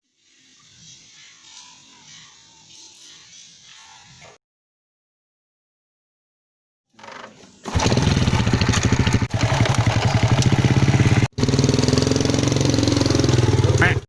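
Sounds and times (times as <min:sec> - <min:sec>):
small engine running: 0:07.0 - 0:14.0.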